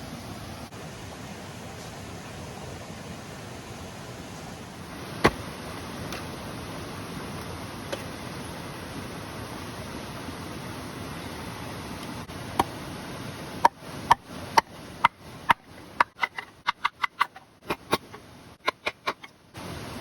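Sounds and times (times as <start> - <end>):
sharp hard knocks: 5.2 - 5.5.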